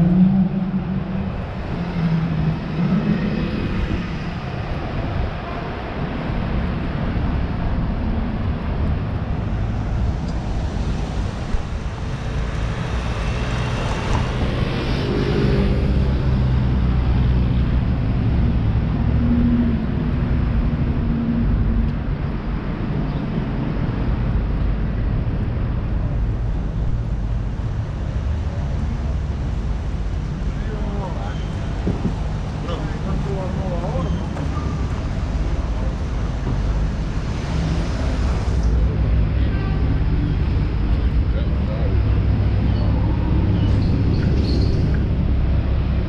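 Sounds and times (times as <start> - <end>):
traffic rumble: 0.0 - 46.0
loud vehicle passing: 8.9 - 21.8.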